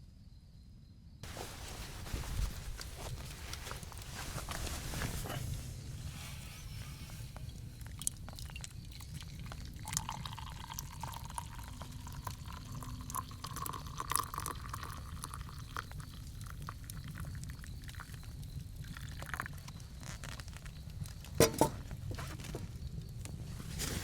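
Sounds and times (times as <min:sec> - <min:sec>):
liquid pouring into container: 0:07.4 - 0:19.6.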